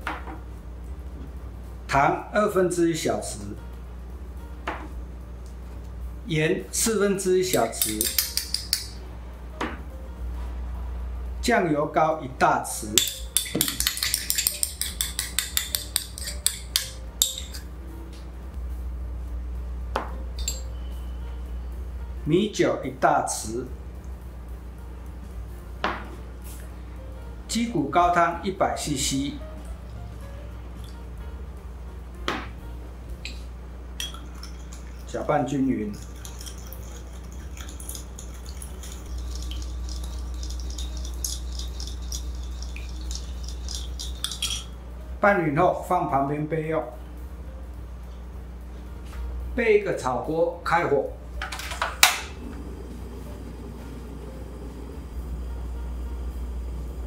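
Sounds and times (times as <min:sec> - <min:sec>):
steady low hum: 0:00.0 - 0:57.0
metal spoon scraping ceramic: 0:07.8 - 0:08.8, 0:13.0 - 0:17.7, 0:36.0 - 0:44.7
spoon sharp tap: 0:13.0 - 0:17.4
liquid splashing: 0:35.9 - 0:43.8.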